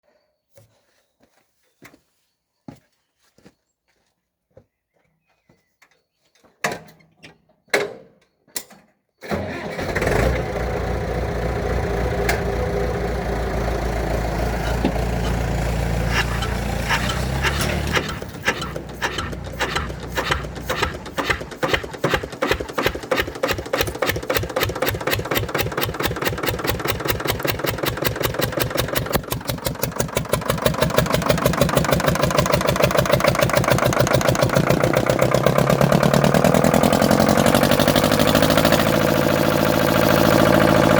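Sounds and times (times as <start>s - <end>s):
diesel engine cranking: 9.2s - 40.9s
diesel engine running: 9.9s - 40.9s
sharp clicks: 16.1s - 30.2s.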